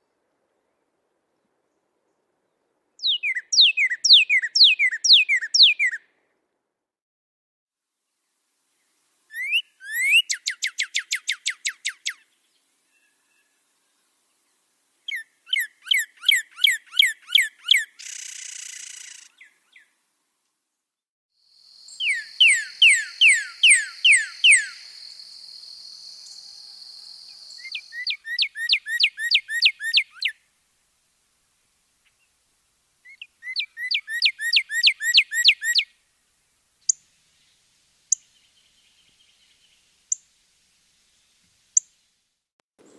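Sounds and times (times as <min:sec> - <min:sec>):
songbird whistling: 0:03.0 - 0:06.0, 0:09.3 - 0:12.2, 0:21.8 - 0:30.4, 0:33.0 - 0:35.9
steady high hiss: 0:21.5 - 0:28.2, 0:35.9 - 0:42.9.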